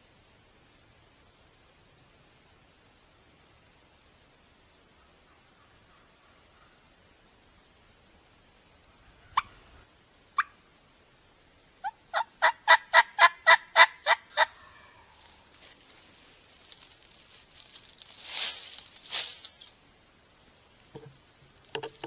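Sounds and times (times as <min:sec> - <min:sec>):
turkey yelps: 0:08.9 - 0:09.7, 0:10.4 - 0:10.6, 0:11.8 - 0:15.4
turkey clucks: 0:08.9 - 0:09.8, 0:10.4 - 0:10.6, 0:11.8 - 0:15.4
scuffling rustle: 0:15.2 - 0:19.8.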